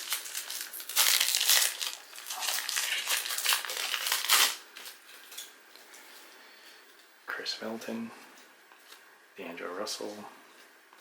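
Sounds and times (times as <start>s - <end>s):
plastic wrapper crinkling: 0.0s - 5.5s.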